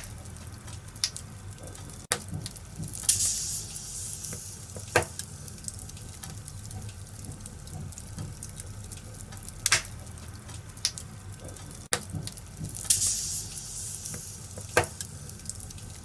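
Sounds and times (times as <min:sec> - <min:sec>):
sharp pops of fire: 0:00.0 - 0:01.3, 0:02.1 - 0:06.5, 0:09.4 - 0:15.9
wood fire crackling: 0:00.0 - 0:16.0.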